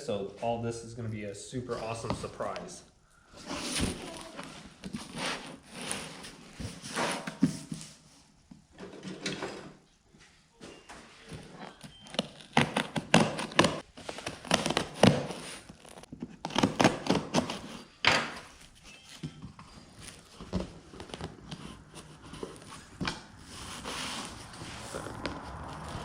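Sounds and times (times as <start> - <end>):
packing material rustling: 11.7 - 26.0.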